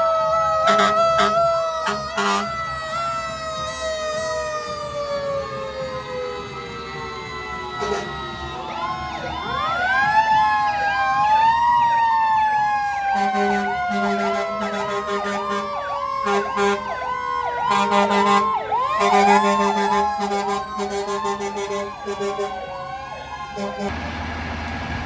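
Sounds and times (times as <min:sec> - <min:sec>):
fast siren yelp: 0:00.0 - 0:23.9
fire truck siren wail: 0:00.0 - 0:25.0
truck horn blasts: 0:00.7 - 0:02.5, 0:07.8 - 0:08.2, 0:13.2 - 0:15.7, 0:16.3 - 0:16.9, 0:17.7 - 0:22.6, 0:23.6 - 0:24.0.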